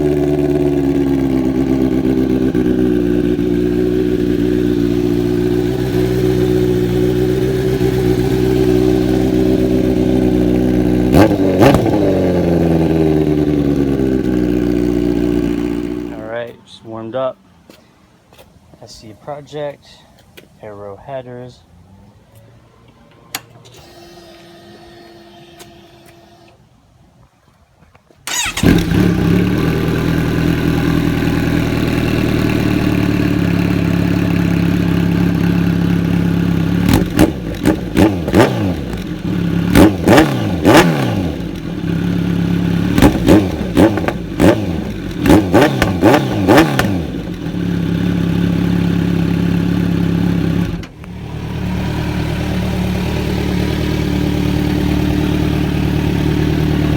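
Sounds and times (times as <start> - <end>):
motorcycle engine idling: 0.0 - 16.3, 28.3 - 56.9
motorcycle engine revving: 0.0 - 16.3, 28.3 - 56.9.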